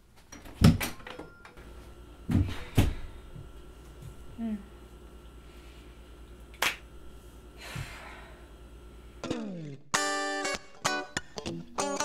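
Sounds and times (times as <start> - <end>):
electric guitar music: 9.2 - 12.0.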